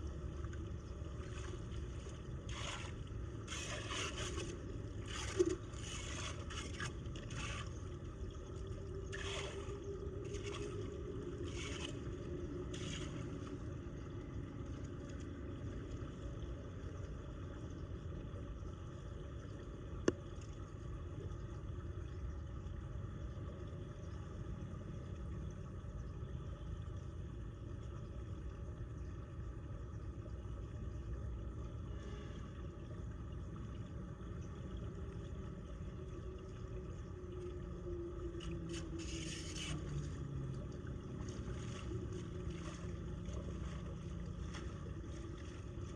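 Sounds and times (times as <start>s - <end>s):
floodwater rushing down storm drain: 0.0s - 15.5s, 33.5s - 45.9s
short scrapes: 2.4s - 7.8s, 11.4s - 12.1s, 38.7s - 40.1s.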